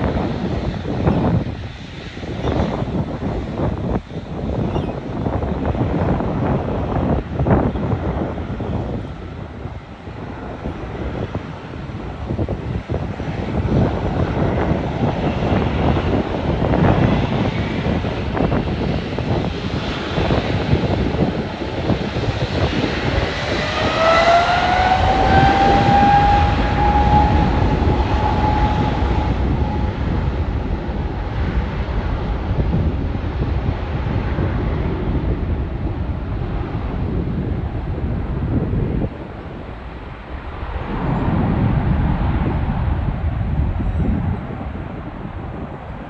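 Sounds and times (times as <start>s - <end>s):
jet engines roaring: 0.0s - 46.0s.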